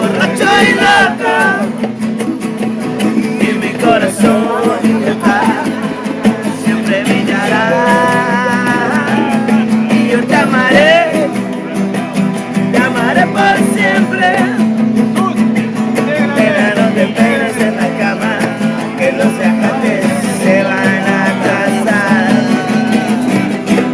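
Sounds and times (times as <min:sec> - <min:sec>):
voices singing along: 0:00.0 - 0:02.0, 0:02.8 - 0:23.9
strummed acoustic guitar: 0:00.0 - 0:23.9.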